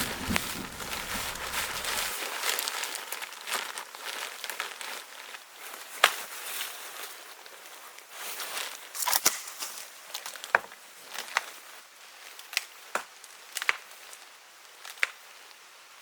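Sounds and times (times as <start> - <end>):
crinkling and crunching: 0.0 - 2.1
rain and thunder rumble: 0.0 - 2.1.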